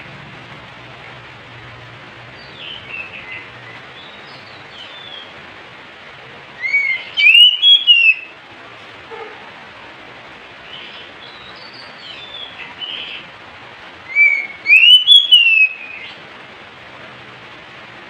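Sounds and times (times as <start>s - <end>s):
bird singing whistled notes: 2.4s - 5.3s, 6.6s - 8.3s, 10.7s - 13.2s, 14.1s - 16.2s.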